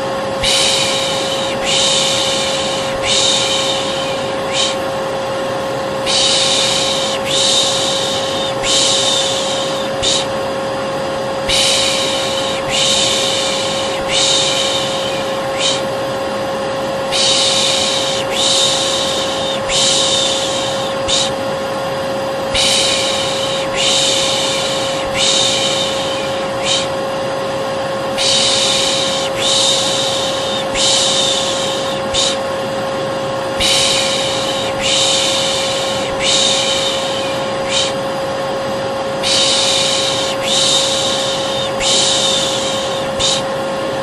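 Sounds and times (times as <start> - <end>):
hair dryer humming: 0.0 - 44.0
person shushing: 0.4 - 4.9, 6.0 - 10.4, 11.4 - 16.0, 17.0 - 21.4, 22.5 - 27.0, 28.2 - 32.5, 33.6 - 38.1, 39.2 - 43.6.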